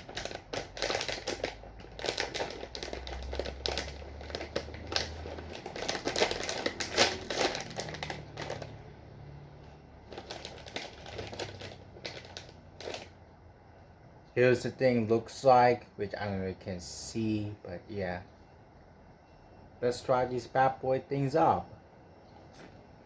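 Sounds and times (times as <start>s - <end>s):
crisp bag crinkling: 0.0s - 8.9s, 10.0s - 13.2s.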